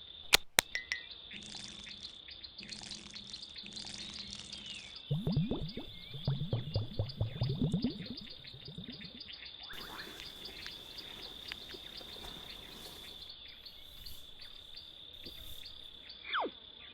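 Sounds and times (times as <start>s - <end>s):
high-pitched insect chirping: 0.0s - 16.5s.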